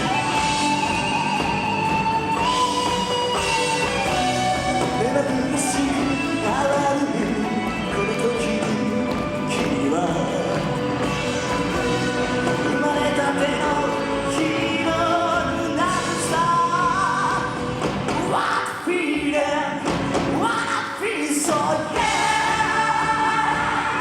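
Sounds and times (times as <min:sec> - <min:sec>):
live band playing: 0:00.0 - 0:18.8, 0:19.8 - 0:21.0, 0:21.6 - 0:24.0
lead singer singing: 0:00.0 - 0:24.0.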